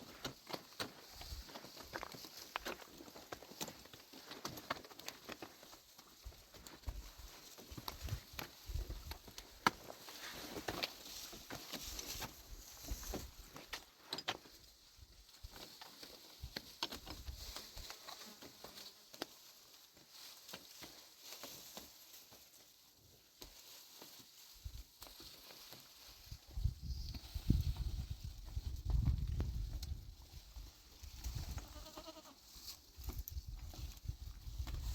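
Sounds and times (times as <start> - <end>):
faint steps on hard ground: 0.0 - 34.9.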